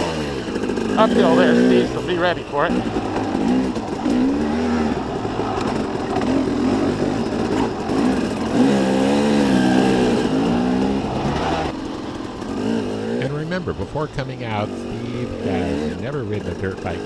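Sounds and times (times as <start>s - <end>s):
two-stroke dirt bike engine revving: 0.0s - 17.0s.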